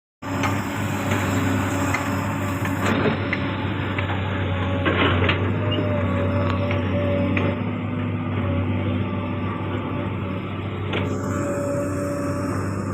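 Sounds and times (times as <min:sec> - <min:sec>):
excavator diesel engine running: 0:00.2 - 0:12.9
thin steady whine: 0:09.2 - 0:12.9.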